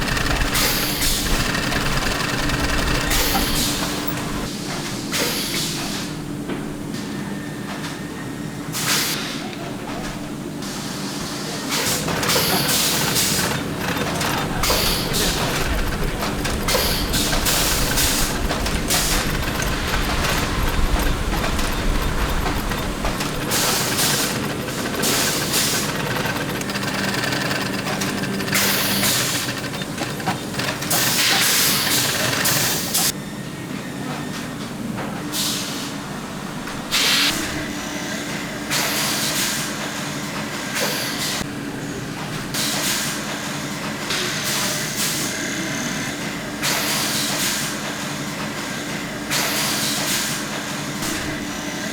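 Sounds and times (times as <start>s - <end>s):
machinery humming: 0.0s - 4.5s, 12.0s - 33.1s.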